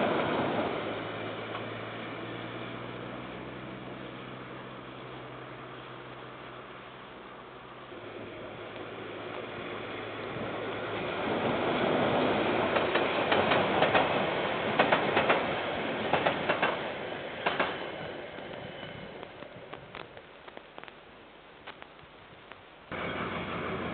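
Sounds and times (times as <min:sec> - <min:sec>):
freight train rumbling past: 0:00.0 - 0:20.1, 0:22.9 - 0:23.9
wheels clacking on rail joints: 0:12.1 - 0:20.9.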